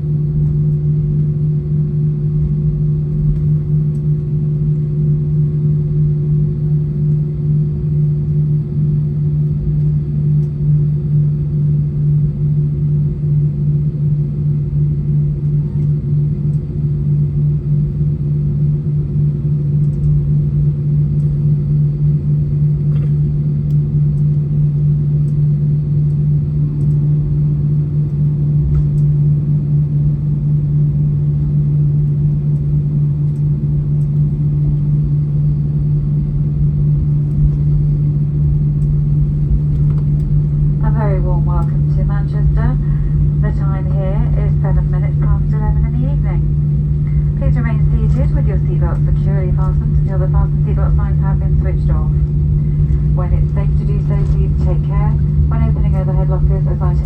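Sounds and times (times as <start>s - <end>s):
aircraft cabin rumble: 0.0s - 57.0s
engine drone: 27.7s - 57.0s.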